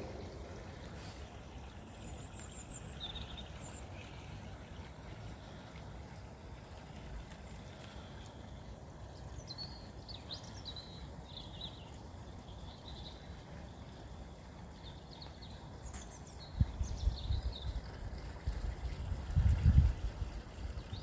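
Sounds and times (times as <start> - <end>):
small birds chirping: 0.0 - 5.7, 7.3 - 18.0
wind rumble on microphone: 16.4 - 21.0.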